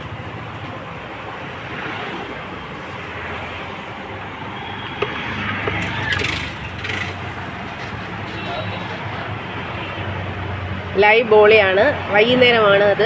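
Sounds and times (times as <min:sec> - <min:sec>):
road traffic passing: 0:00.0 - 0:13.0
sharp clicks and clatter: 0:05.0 - 0:09.0.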